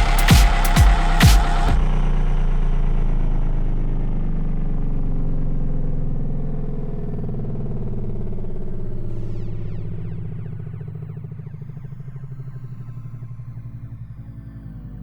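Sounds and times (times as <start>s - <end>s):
kick drum: 0.0s - 1.8s
low synth bass and pad: 0.0s - 15.0s.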